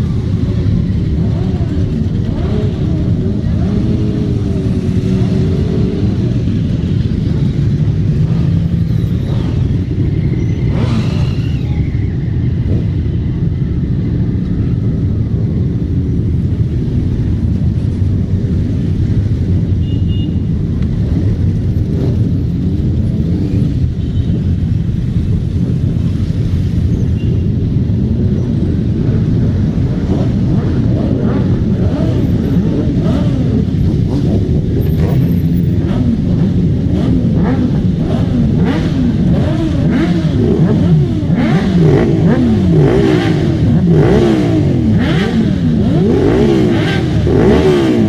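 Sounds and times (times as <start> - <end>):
motorcycle engines rumbling: 0.0 - 48.0.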